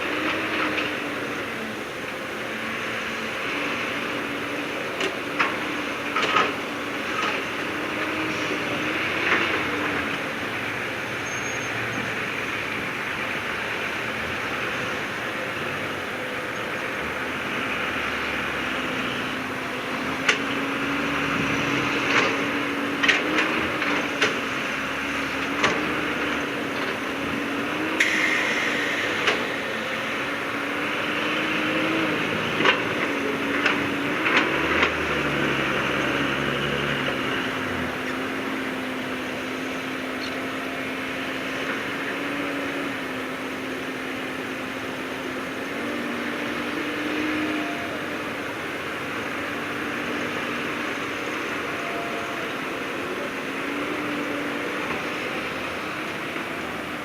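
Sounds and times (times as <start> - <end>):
heavy diesel machinery running: 0.0 - 57.0
short hiss: 28.0 - 29.1.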